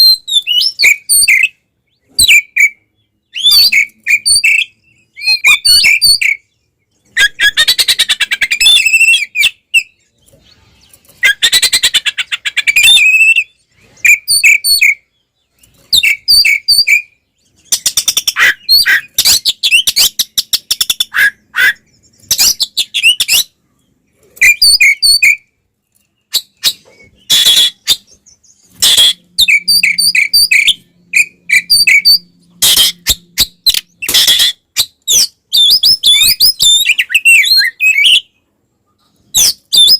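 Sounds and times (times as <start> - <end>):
bird whistled notes: 26.3 - 38.3.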